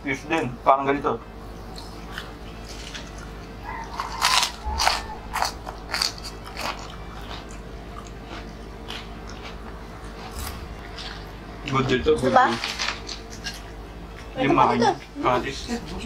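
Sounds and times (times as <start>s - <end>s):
crackers crunching: 1.8s - 14.3s.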